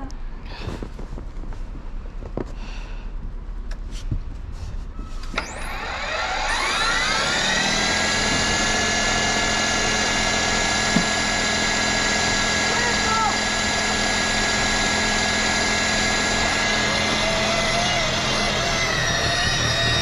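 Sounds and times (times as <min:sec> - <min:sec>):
snowblower engine running: 0:05.4 - 0:20.0.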